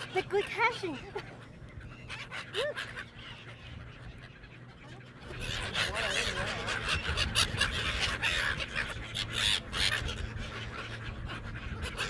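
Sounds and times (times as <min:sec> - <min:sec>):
seagulls squawking: 0:00.0 - 0:12.0.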